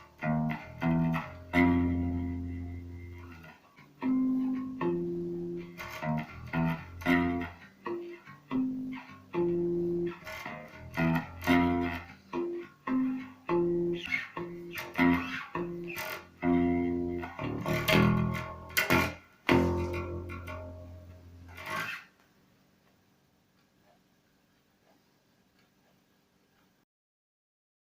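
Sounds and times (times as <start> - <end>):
plucked electric bass notes: 0.1 - 21.8
bass string clicks: 13.0 - 21.8.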